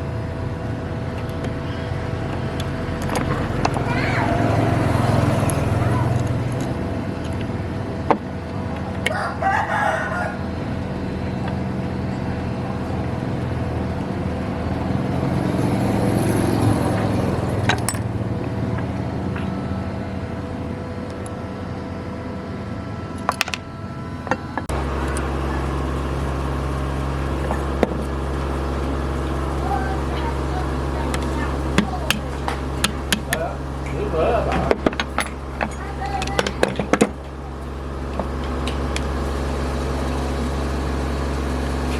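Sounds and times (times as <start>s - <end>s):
motor hum: 0.0s - 41.9s
rooster crowing: 9.0s - 10.7s.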